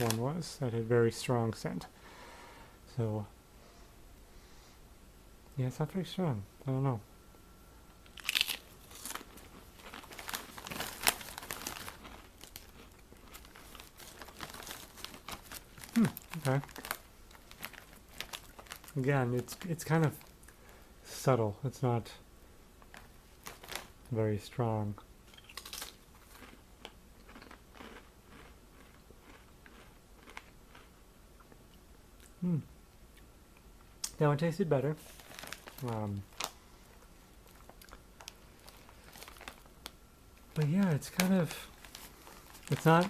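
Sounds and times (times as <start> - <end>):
chip bag crinkling: 0.0 - 0.2, 8.0 - 20.4, 22.8 - 24.0, 25.3 - 30.9, 35.0 - 43.0.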